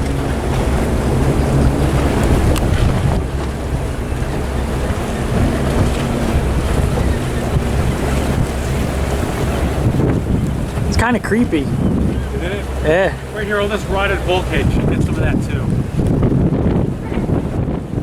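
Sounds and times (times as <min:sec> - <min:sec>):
motorboat engine running: 0:00.0 - 0:18.0
water rushing past hull: 0:00.0 - 0:18.0
wind buffeting microphone: 0:00.0 - 0:18.0.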